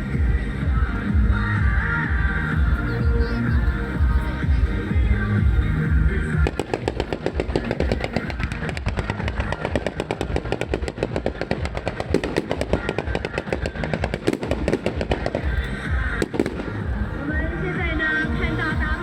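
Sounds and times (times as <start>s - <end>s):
fireworks bangs: 6.4s - 17.0s.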